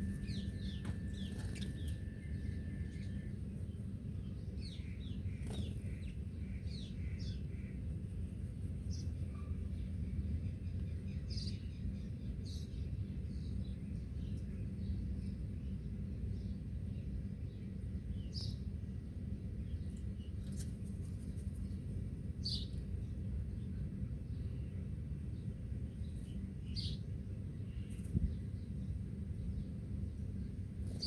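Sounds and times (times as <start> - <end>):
birds chirping: 0.0 - 7.8
low background rumble: 0.0 - 31.0.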